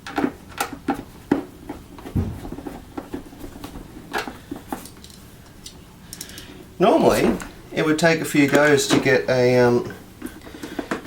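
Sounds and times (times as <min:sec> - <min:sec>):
dull thump: 0:02.1 - 0:02.7.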